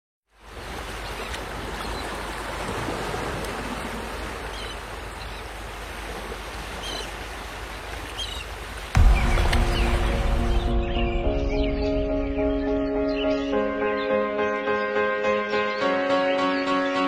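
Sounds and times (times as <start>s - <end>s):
small waves washing on shore: 0.3s - 10.8s.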